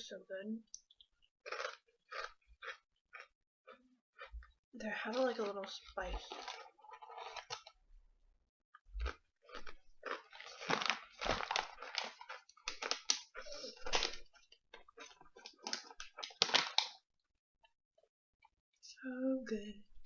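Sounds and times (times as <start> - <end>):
person chewing crunchy fries: 0.8 - 7.8, 8.8 - 17.0.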